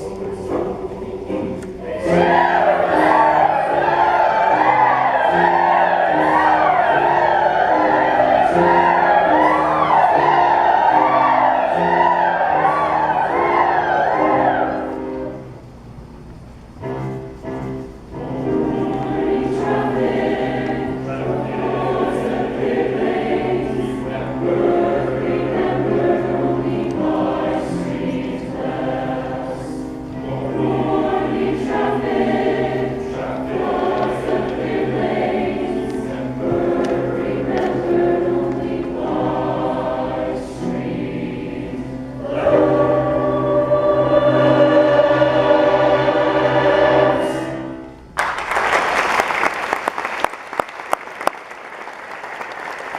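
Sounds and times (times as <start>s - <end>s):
choir singing: 0.0s - 15.4s, 17.0s - 48.0s.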